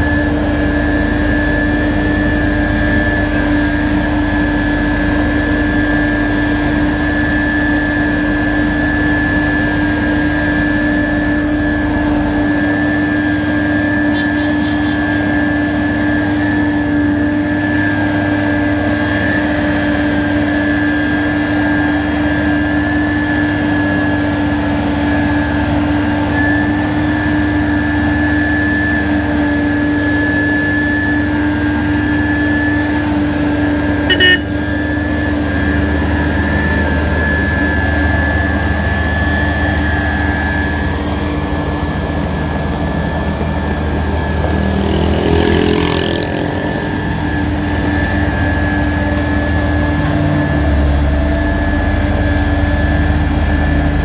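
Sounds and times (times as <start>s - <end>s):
heavy machinery engine drone: 0.0s - 54.0s
high whine: 30.0s - 45.2s.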